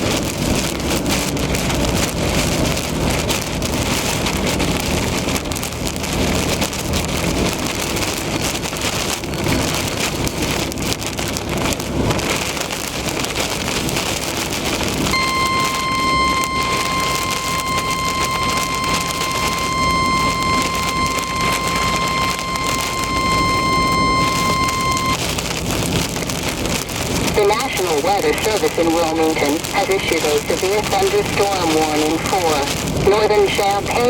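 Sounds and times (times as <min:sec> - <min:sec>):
heavy rain on a car: 0:00.0 - 0:34.0
steady beeping alert tone: 0:15.2 - 0:25.2.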